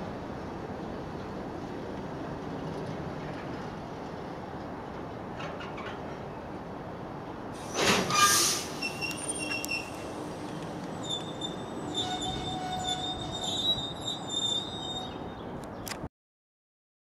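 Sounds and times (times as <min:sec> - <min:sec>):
freight train rolling on rails: 0:00.0 - 0:15.7
high wheel squeal: 0:07.6 - 0:15.4.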